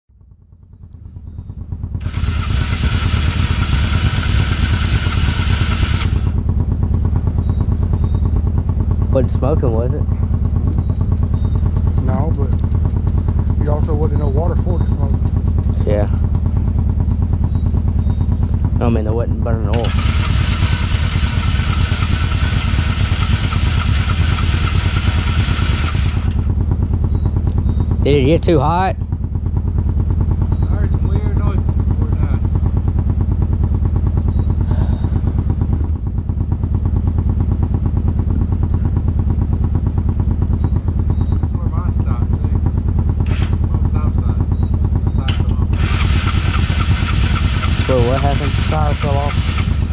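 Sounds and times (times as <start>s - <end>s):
off-road vehicle engine running: 0.1s - 49.9s.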